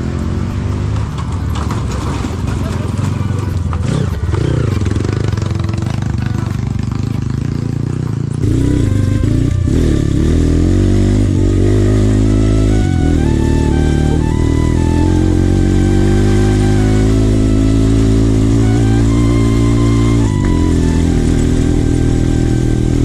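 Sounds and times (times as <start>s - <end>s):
motorcycle engine revving: 0.0s - 23.0s
music with stepping melody: 8.4s - 23.0s.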